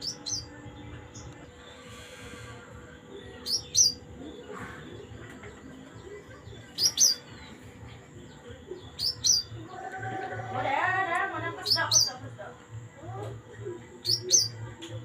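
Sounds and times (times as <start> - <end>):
songbird calling: 0.0 - 0.6, 2.0 - 12.2, 14.0 - 14.7.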